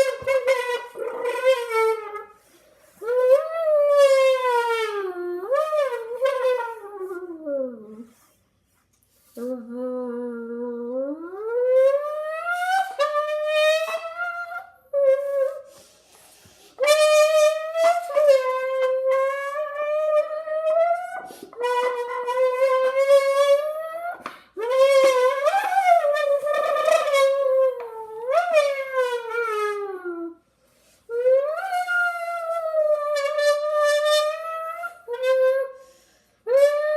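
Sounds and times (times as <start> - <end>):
child humming engine imitation: 9.4 - 13.0.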